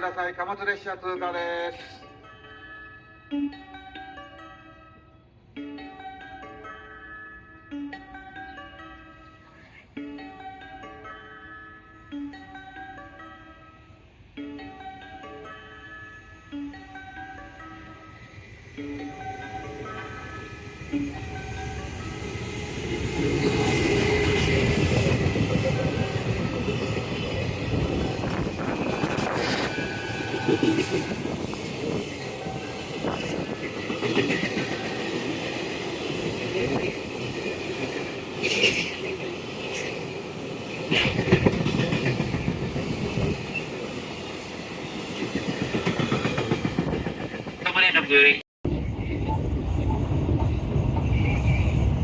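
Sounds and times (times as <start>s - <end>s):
freight train wheels clattering on rails: 21.0s - 47.8s
high wheel squeal: 27.7s - 33.6s.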